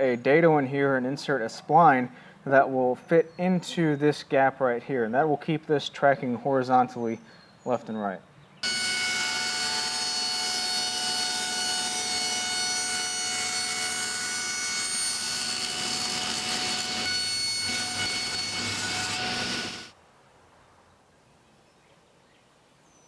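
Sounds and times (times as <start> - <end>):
power tool motor whining: 8.6 - 19.9.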